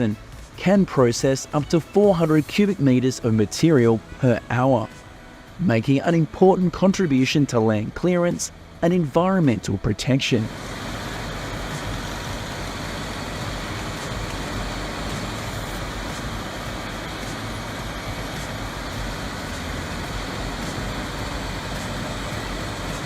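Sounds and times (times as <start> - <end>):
grinder machine running: 10.4 - 23.0.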